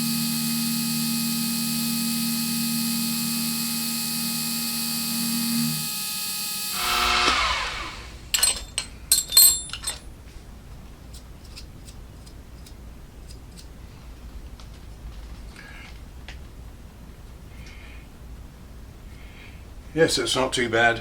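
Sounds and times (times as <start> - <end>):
spindle motor whine winding down: 0.0 - 8.3
metallic clicks and clinks: 8.3 - 10.1.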